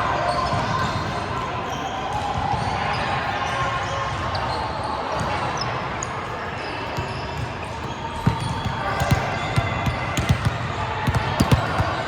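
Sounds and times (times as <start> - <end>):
volleyball thuds: 7.8 - 12.0.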